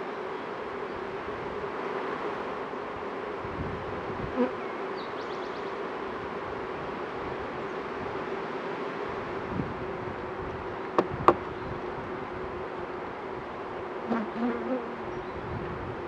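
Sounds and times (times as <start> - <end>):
bees buzzing: 0.4 - 5.2, 13.7 - 15.2.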